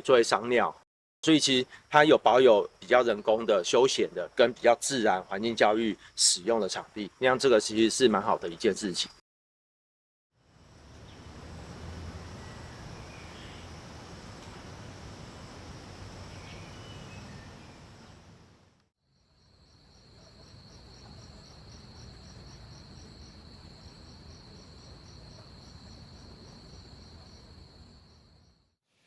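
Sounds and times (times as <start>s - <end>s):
rapid pulsing insect call: 0.0s - 9.2s, 10.4s - 28.7s
faint chirp: 16.2s - 18.2s.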